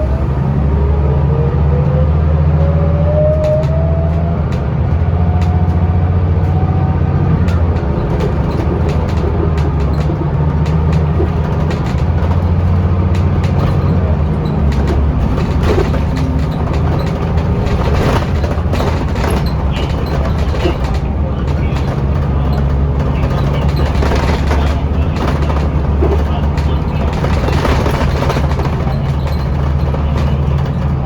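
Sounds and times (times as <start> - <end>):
bus diesel engine drone: 0.0 - 31.0
rattles and knocks: 3.3 - 31.0.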